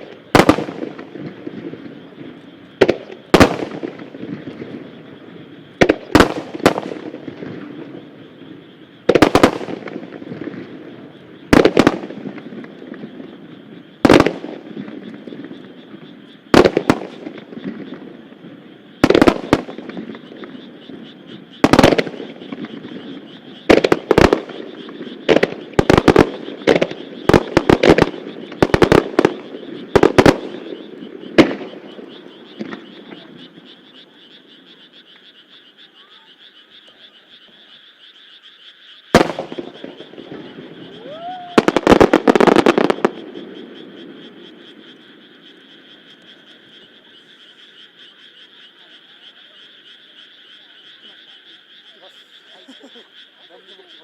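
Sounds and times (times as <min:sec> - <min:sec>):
fireworks bursting with sharp bangs: 0:00.0 - 0:35.3, 0:39.1 - 0:47.7
frogs croaking: 0:00.0 - 0:54.0
rising firework whistle: 0:39.2 - 0:43.2.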